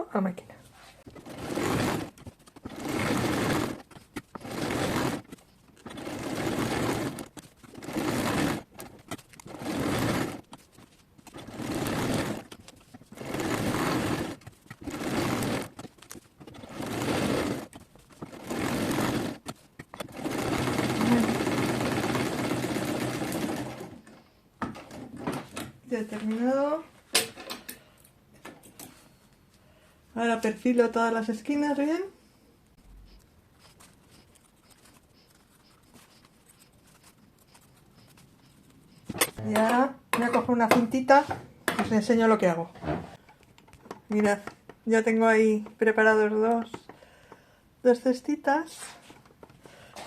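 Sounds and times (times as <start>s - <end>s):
sewing machine stitching: 1.0s - 24.2s.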